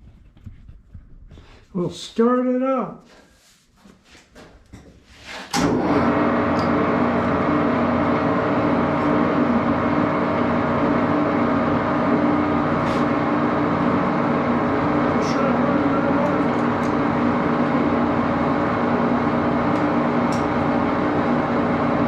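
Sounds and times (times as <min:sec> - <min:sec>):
lathe motor humming: 0:05.6 - 0:22.0.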